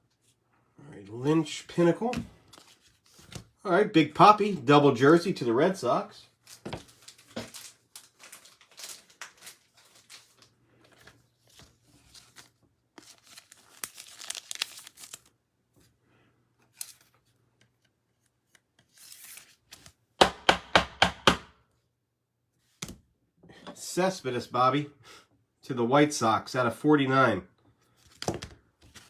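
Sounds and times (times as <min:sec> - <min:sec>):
foil wrapper crinkling: 0:06.4 - 0:15.4.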